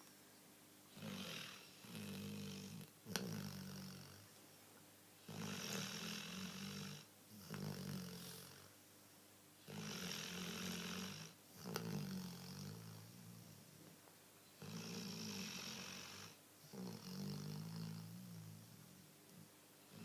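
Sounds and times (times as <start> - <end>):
dog snoring: 0.9 - 4.3, 5.2 - 8.7, 9.6 - 13.8, 14.6 - 19.0.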